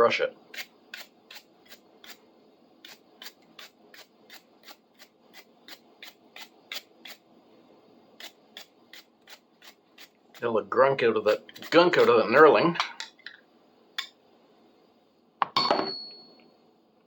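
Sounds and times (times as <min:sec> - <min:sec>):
toothbrush scrubbing metal: 0:02.8 - 0:07.2, 0:08.2 - 0:10.5, 0:11.2 - 0:12.3.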